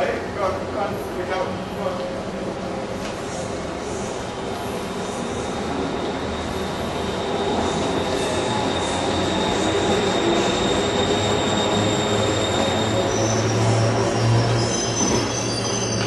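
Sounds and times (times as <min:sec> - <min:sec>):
electric train rumble with whine: 0:00.0 - 0:16.0
high squeal: 0:04.8 - 0:16.0.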